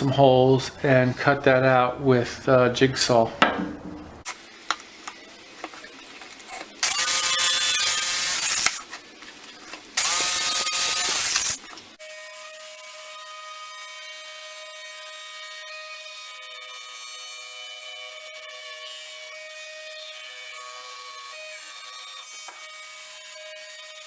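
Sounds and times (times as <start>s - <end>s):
power drill boring wood: 6.8s - 8.9s, 10.0s - 11.6s.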